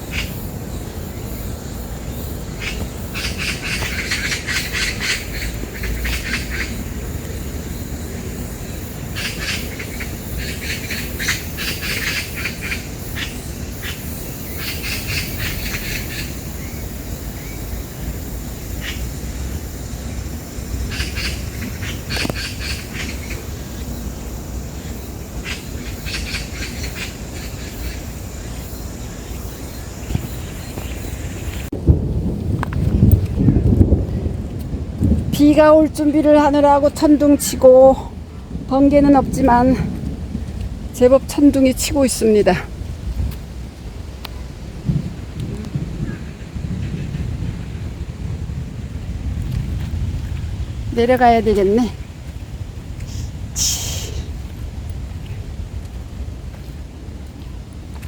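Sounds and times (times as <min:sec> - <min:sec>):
magpies chattering: 0:00.0 - 0:31.7
low wind rumble: 0:00.0 - 0:58.0.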